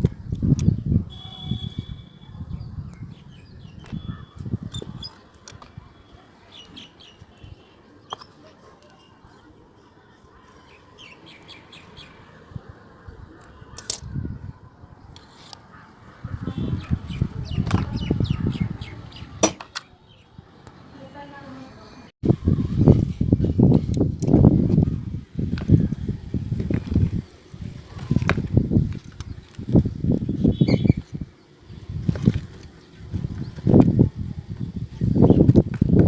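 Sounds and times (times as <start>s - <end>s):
small birds chirping: 0.5s - 13.8s, 14.7s - 21.4s, 26.9s - 36.0s.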